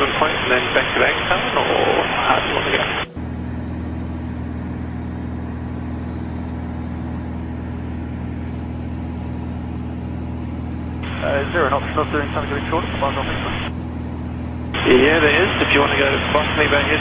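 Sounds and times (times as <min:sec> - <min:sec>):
aircraft engine and propeller droning: 0:00.0 - 0:17.0.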